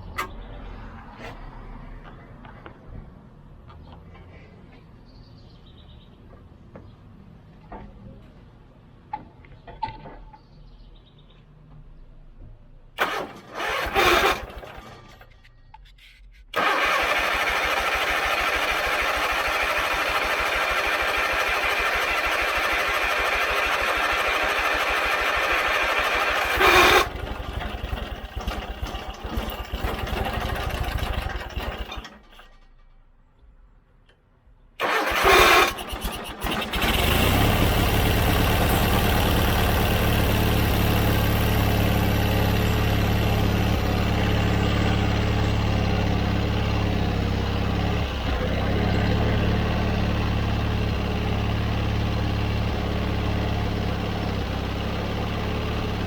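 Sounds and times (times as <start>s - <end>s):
riding mower engine running: 13.0s - 15.4s, 16.5s - 32.8s, 34.8s - 56.0s.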